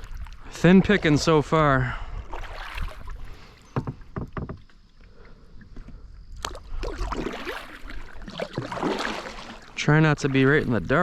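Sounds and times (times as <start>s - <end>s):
paddle blades splashing: 0.0s - 11.0s
short knocks: 3.7s - 4.7s.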